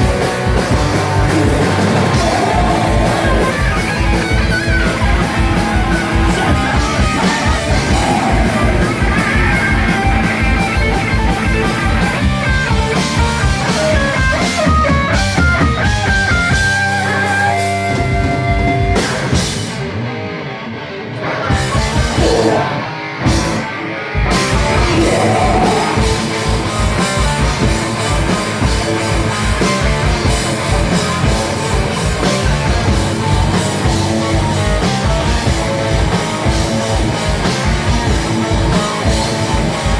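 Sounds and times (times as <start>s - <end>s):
driving drum kit: 0.0s - 20.0s, 21.5s - 39.9s
distorted electric guitar: 0.0s - 39.9s.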